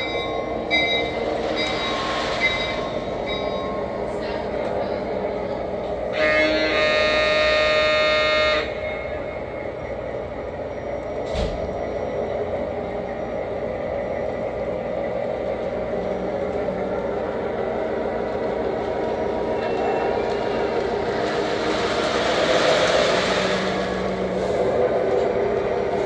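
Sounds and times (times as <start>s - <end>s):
train horn blast: 6.1s - 9.2s
model train engine running: 15.6s - 26.0s.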